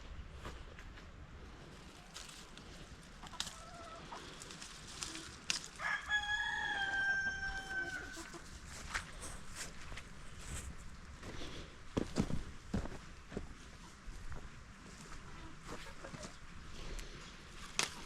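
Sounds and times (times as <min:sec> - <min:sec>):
rooster crowing: 0:05.8 - 0:08.4.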